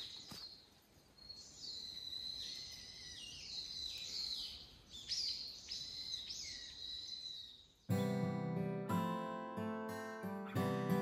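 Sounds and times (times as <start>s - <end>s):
birds chirping: 0.0s - 9.1s.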